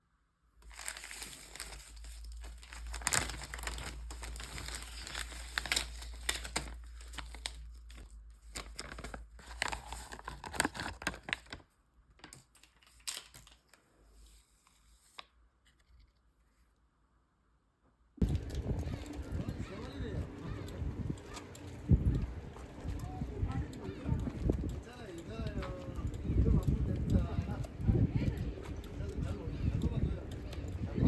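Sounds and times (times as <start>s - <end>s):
crinkling and tearing: 0.6s - 13.9s.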